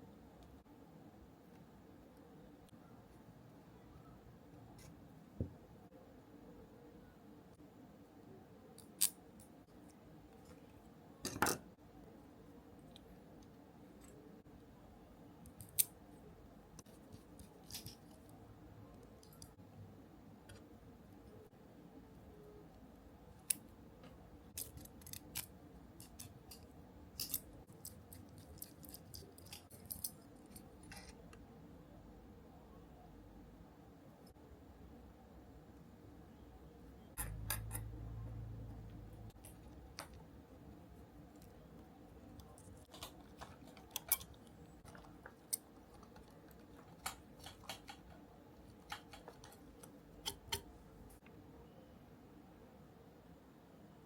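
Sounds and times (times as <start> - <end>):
tools and parts clicking: 24.6 - 31.1, 37.2 - 37.9, 42.4 - 50.8.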